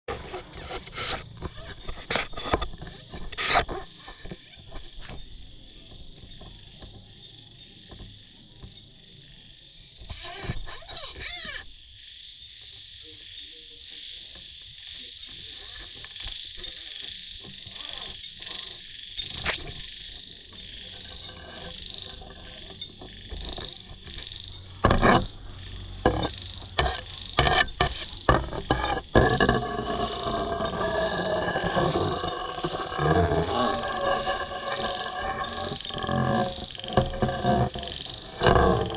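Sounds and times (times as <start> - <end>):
frogs and insects trilling: 0.1 - 38.9.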